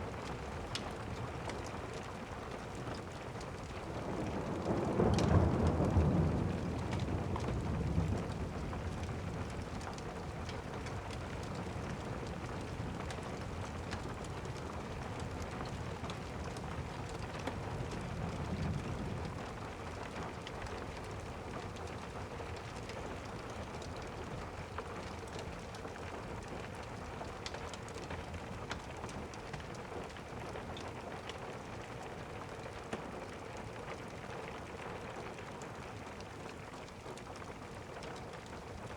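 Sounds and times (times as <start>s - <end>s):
steady rain: 0.0s - 38.9s
thunder rolling: 3.9s - 9.8s.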